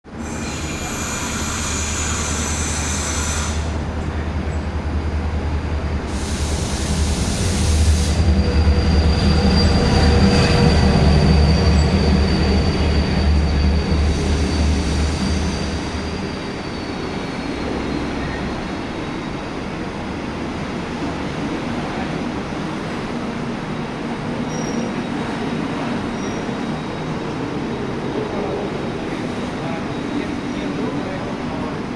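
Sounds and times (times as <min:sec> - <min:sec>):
train rumbling through station: 0:00.0 - 0:31.9
high wheel squeal: 0:00.2 - 0:04.2, 0:06.0 - 0:19.6, 0:23.8 - 0:28.1.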